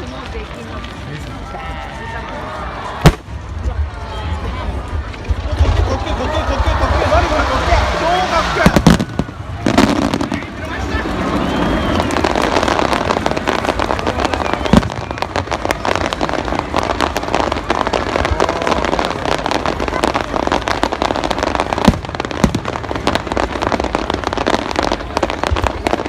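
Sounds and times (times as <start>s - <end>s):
fireworks crackling: 0.0s - 26.0s
firework shells booming: 3.0s - 3.4s.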